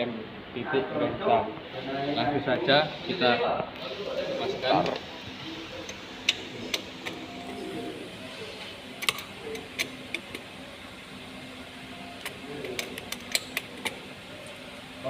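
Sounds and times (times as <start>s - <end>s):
hand tools clicking on metal: 12.2s - 14.0s.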